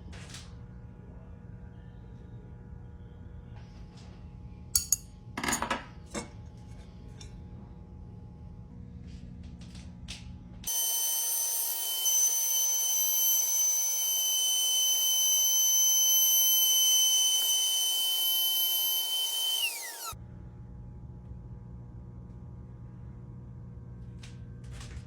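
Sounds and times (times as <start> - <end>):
router motor whining: 10.7 - 20.2.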